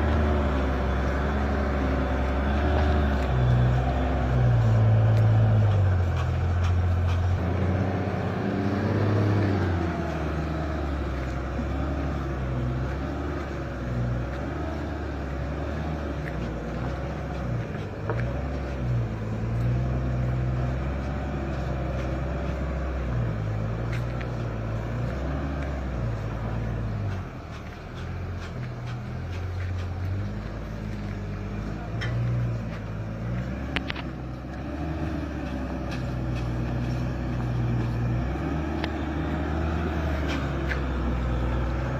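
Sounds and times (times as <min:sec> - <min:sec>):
diesel truck engine under load: 0:00.0 - 0:41.9.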